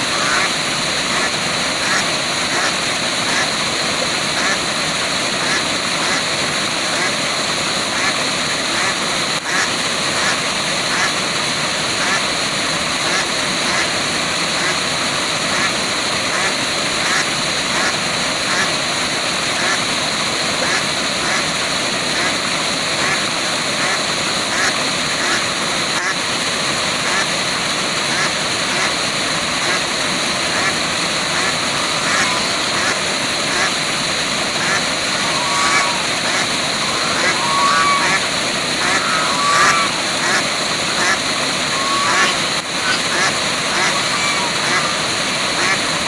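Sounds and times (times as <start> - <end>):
waterfall rushing: 0.0 - 46.0
short animal calls: 31.3 - 33.8, 34.6 - 45.7.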